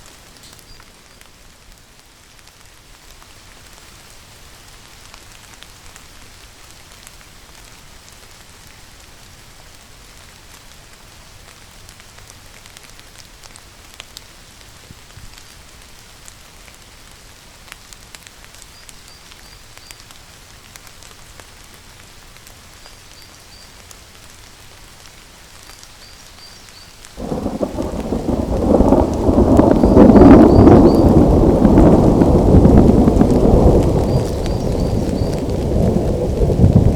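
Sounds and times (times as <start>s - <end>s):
steady rainfall: 0.0s - 36.9s
thunder rumbling: 27.2s - 36.9s.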